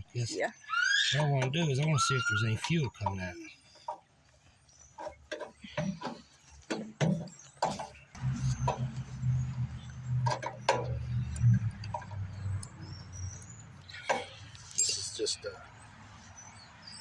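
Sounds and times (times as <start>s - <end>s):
sharp metal clicks and knocks: 5.0s - 14.8s.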